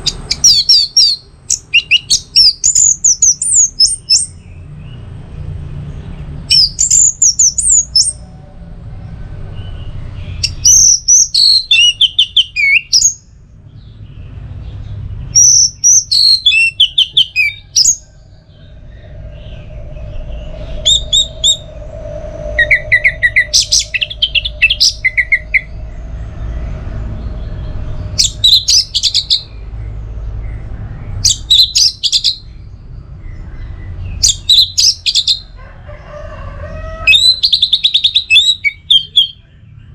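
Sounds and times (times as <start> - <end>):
steady low rumble: 3.3 - 12.6, 13.2 - 35.6
thrush singing: 14.2 - 32.5.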